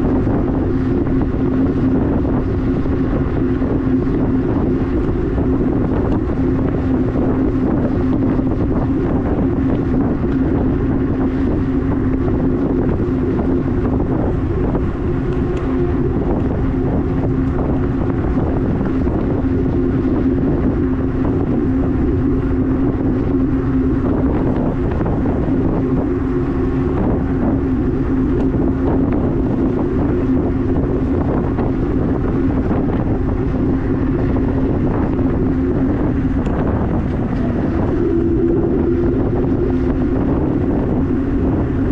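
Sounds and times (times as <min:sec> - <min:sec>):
electric bike motor humming: 0:00.0 - 0:41.9
wind buffeting microphone: 0:00.0 - 0:41.9.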